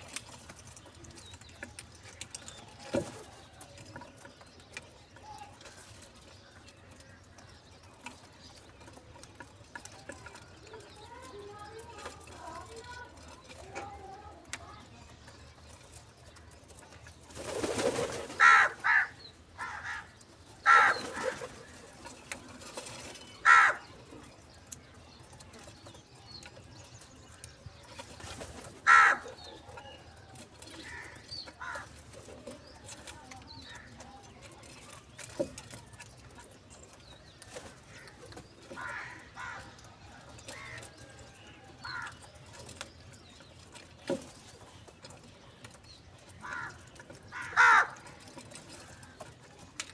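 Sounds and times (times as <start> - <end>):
crows cawing: 18.3 - 21.4, 23.4 - 23.9, 28.8 - 29.4, 30.8 - 31.9, 38.8 - 39.8, 41.8 - 42.2, 46.4 - 48.1.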